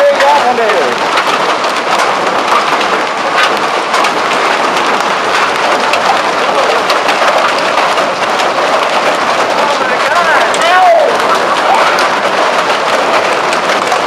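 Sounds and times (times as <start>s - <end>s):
hailstones clattering: 0.0s - 14.0s.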